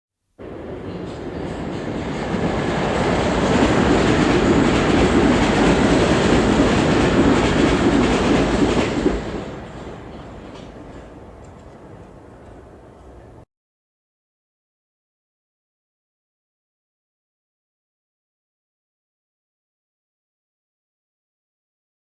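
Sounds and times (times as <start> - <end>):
train wheels on track: 0.4 - 13.4.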